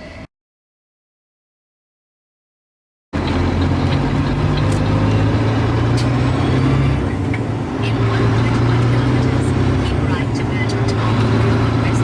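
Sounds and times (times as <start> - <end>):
heavy truck engine humming: 3.2 - 12.0.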